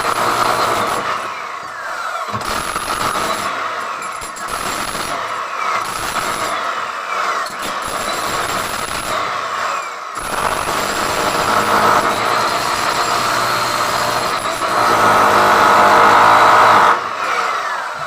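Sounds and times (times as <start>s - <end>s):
power tool running under load: 0.0s - 18.0s.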